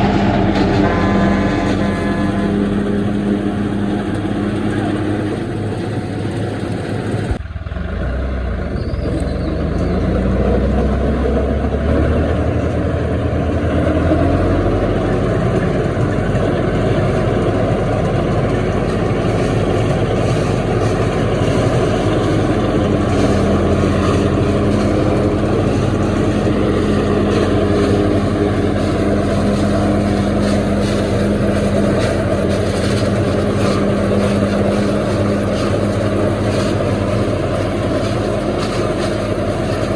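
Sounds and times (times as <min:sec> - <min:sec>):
harvester engine and machinery: 0:00.0 - 0:39.9.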